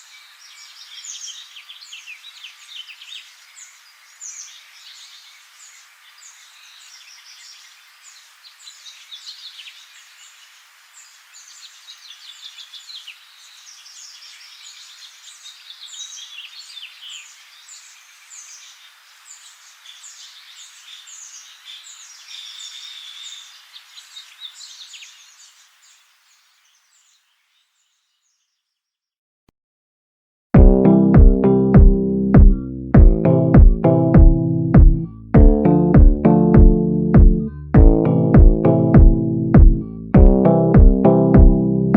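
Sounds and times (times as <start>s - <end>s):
small birds chirping and trilling: 0.0s - 29.2s.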